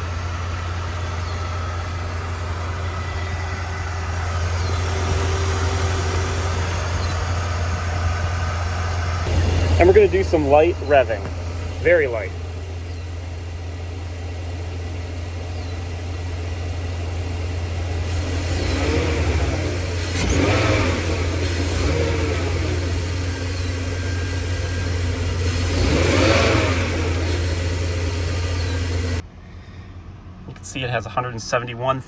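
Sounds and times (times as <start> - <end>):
car engine idling with throttle blips: 0.0 - 32.0.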